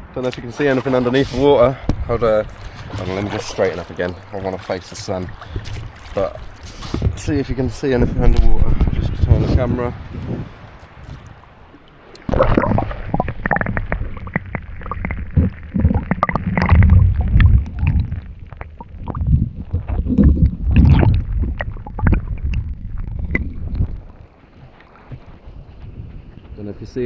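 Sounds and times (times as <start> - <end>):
muffled underwater sloshing: 0.1 - 26.1
sharp underwater clicks and pops: 1.8 - 3.1, 11.0 - 25.9.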